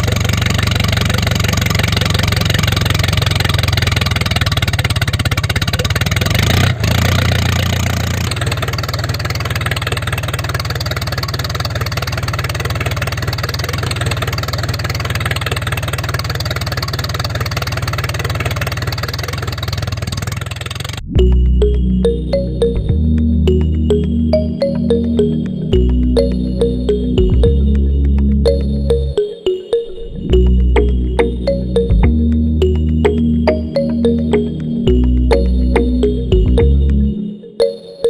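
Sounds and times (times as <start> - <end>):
small tractor motor running: 0.0 - 21.1
electronic music: 21.0 - 38.0.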